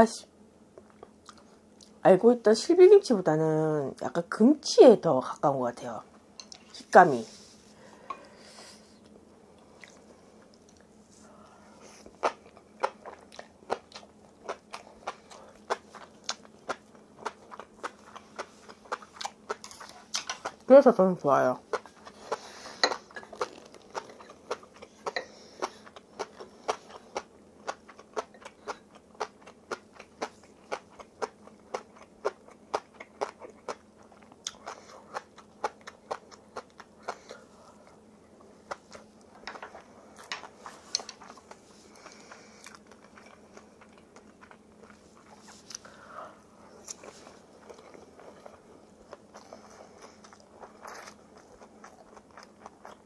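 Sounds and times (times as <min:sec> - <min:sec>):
chewing crunchy food: 0:09.6 - 0:20.7, 0:21.6 - 0:46.1, 0:46.7 - 0:53.0.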